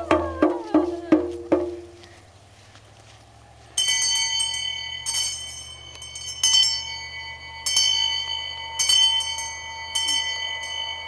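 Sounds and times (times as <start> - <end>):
bell ringing: 3.8 - 11.0.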